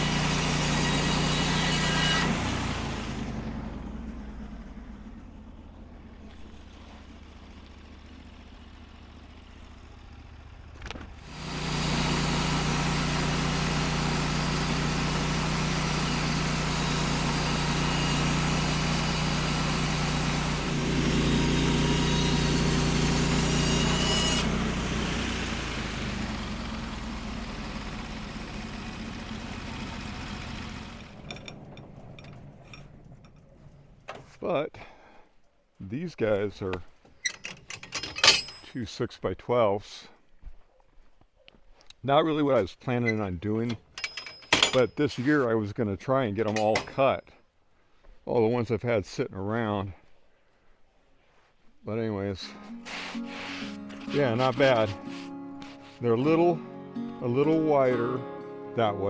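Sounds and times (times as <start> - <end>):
saw blade cutting log: 0.0 - 3.4, 11.2 - 31.7, 52.4 - 56.6
sawmill engine running: 0.0 - 34.4, 52.4 - 58.4.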